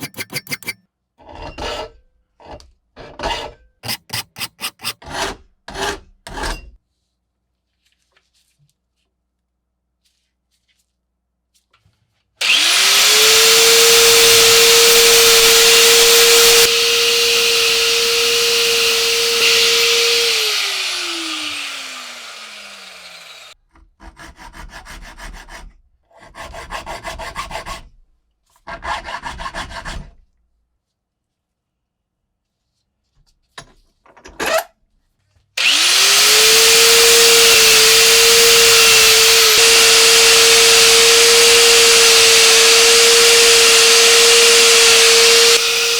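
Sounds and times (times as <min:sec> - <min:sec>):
power tool whining: 0:00.0 - 0:00.8, 0:12.4 - 0:23.6, 0:35.6 - 0:45.9
power tool spinning down: 0:12.4 - 0:23.6, 0:35.6 - 0:45.9.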